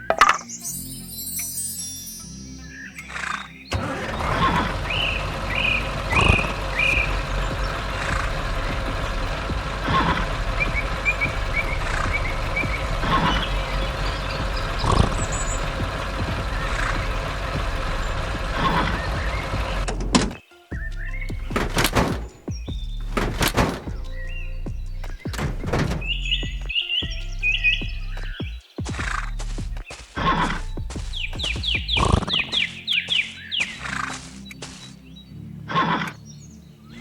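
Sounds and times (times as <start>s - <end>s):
engine knocking: 3.7s - 20.4s
heavy truck engine running: 3.7s - 20.4s, 21.4s - 22.4s, 23.0s - 24.2s, 24.8s - 26.7s.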